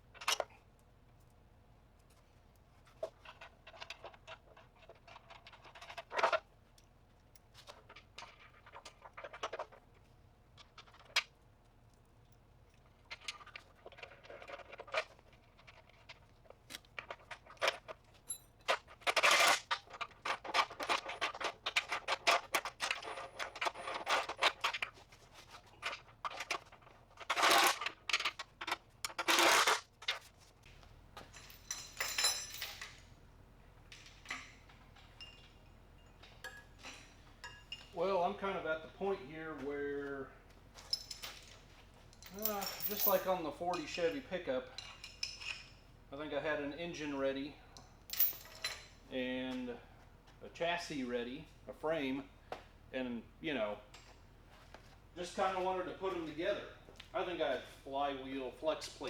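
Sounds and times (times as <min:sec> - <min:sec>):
metal pieces clinking and knocking: 0:30.7 - 0:38.0, 0:40.7 - 0:44.2, 0:44.8 - 0:45.8, 0:47.8 - 0:49.0.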